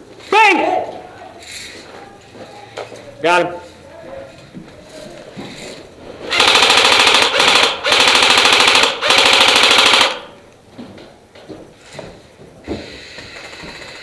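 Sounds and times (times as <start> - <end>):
airsoft rifle full-auto bursts: 6.3 - 10.4.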